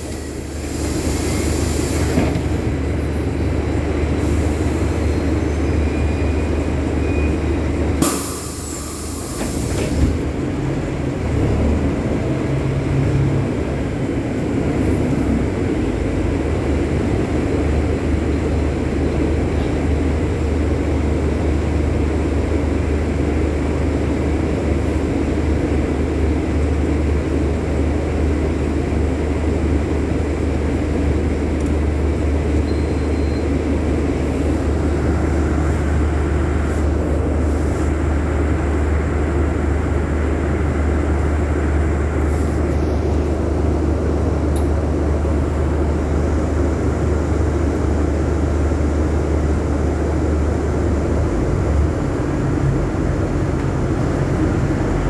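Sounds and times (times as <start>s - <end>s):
bus engine droning: 0.0s - 55.0s
compressed-air hiss: 0.1s - 2.2s.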